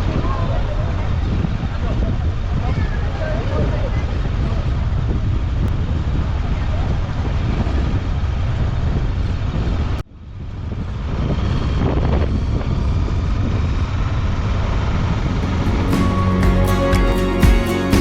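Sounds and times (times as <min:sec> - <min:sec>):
wind blasting over microphone: 0:00.0 - 0:15.8
music: 0:15.4 - 0:18.0.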